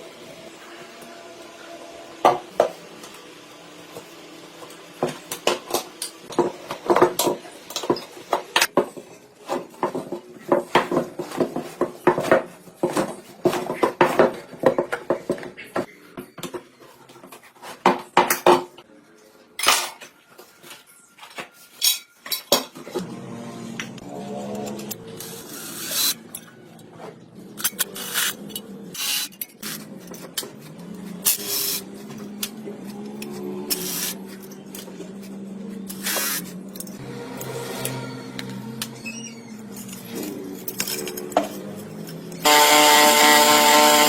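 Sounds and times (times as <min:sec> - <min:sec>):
metal parts and tools clinking: 0:39.6 - 0:42.2.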